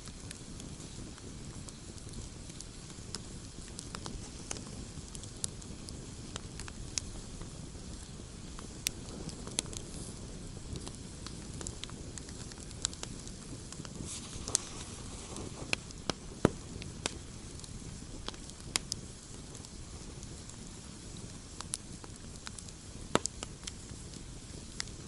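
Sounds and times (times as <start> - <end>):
campfire crackling and popping: 0.0 - 25.0
low rumble of flames: 0.0 - 25.0.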